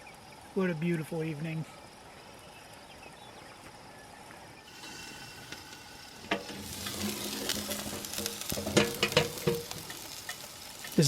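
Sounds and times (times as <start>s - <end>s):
steak sizzling on grill: 4.6s - 11.0s.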